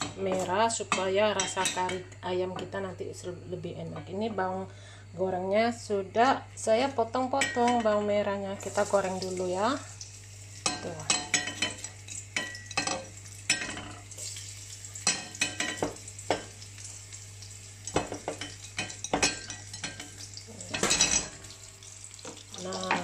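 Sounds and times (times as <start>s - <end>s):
shallots sizzling in hot oil: 7.4s - 23.0s.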